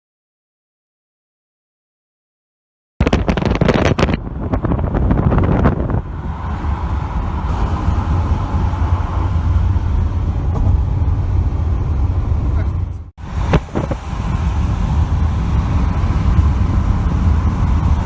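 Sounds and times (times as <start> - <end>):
vehicle engine and road drone: 3.0 - 18.0
wind buffeting microphone: 3.0 - 18.0.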